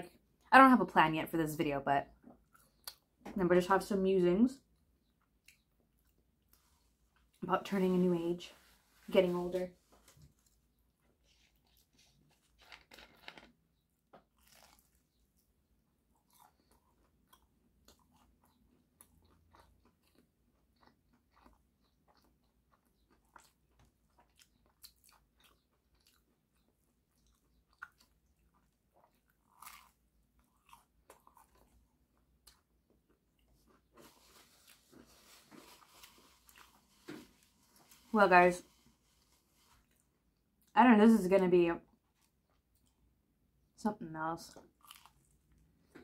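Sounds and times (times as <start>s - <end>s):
crunchy bites and chewing: 11.3s - 37.6s, 44.5s - 46.0s.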